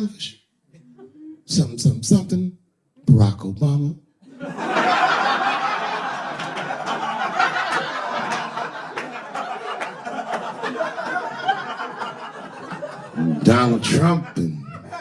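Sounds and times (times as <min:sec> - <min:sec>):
audience laughing: 0:04.2 - 0:15.0
audience applauding: 0:05.1 - 0:13.6.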